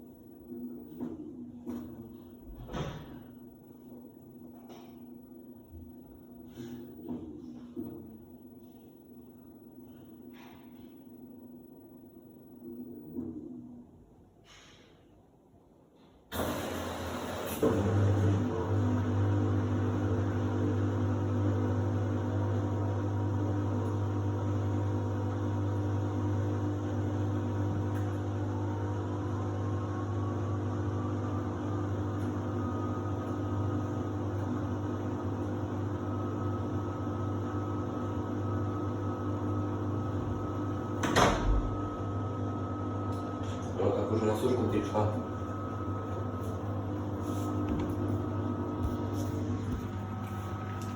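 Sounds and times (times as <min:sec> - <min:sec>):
washer-dryer humming: 0:16.3 - 0:50.9.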